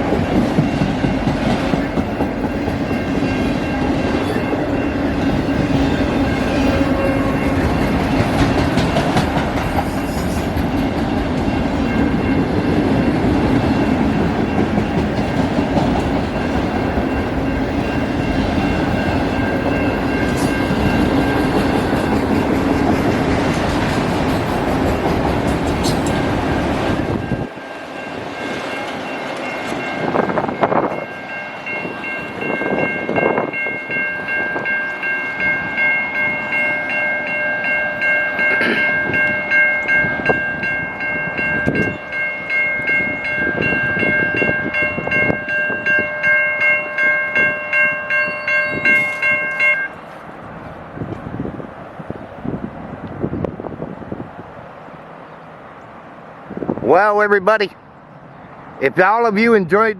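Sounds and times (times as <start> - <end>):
freight train wheels rumbling on rail: 0.0 - 59.9
high ringing tones: 0.2 - 8.8, 10.0 - 21.8, 27.1 - 50.0.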